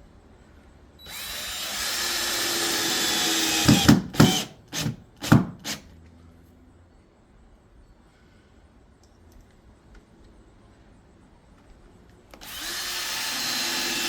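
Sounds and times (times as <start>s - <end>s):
power drill driving a screw: 1.1s - 5.8s, 12.4s - 14.0s.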